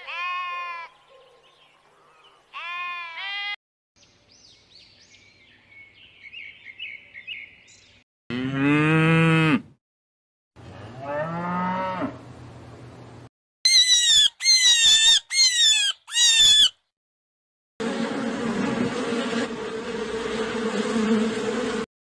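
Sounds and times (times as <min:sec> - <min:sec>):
sheep bleating: 0:00.0 - 0:00.9, 0:02.6 - 0:03.6
cattle mooing: 0:08.3 - 0:09.7, 0:10.7 - 0:12.2
faint high chirping calls: 0:13.7 - 0:16.8.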